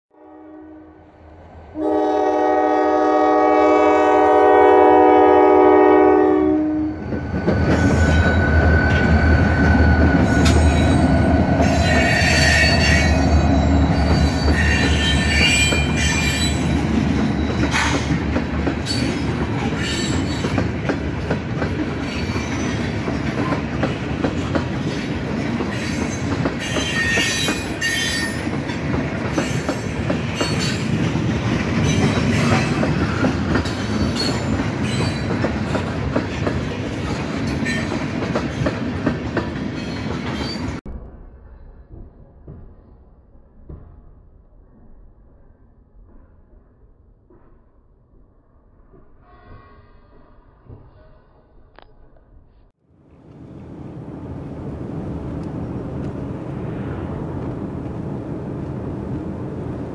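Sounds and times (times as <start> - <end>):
diesel locomotive engine hum: 0.2 - 40.9, 52.9 - 59.9
steel wheels rumbling on rail: 1.1 - 40.9, 53.1 - 59.9
wheels clacking over rail joints: 9.9 - 40.8.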